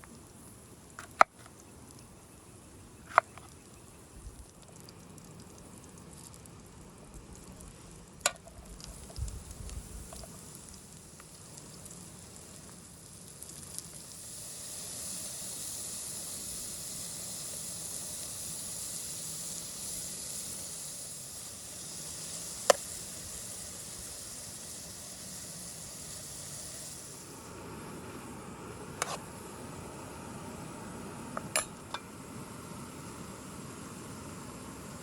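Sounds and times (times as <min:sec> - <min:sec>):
food sizzling in a pan: 0:08.4 - 0:35.0.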